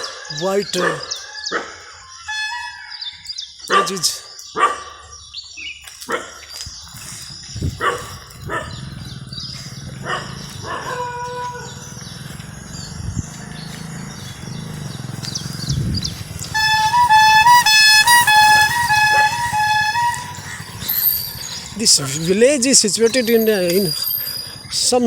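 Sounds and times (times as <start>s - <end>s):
engine rumble passing: 7.0s - 25.0s
electronic beeping melody: 14.2s - 22.4s.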